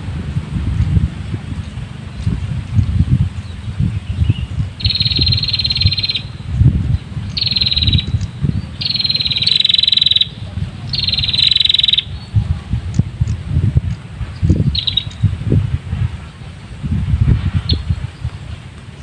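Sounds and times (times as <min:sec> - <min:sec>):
wind rumble on microphone: 0:00.0 - 0:19.0
bird rattling scolding calls: 0:01.6 - 0:15.4.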